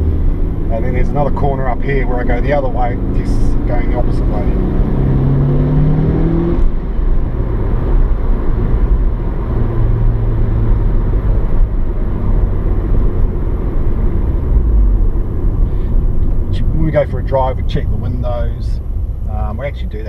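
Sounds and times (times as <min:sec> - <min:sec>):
car engine accelerating: 0:00.0 - 0:20.0
road rumble: 0:00.0 - 0:20.0.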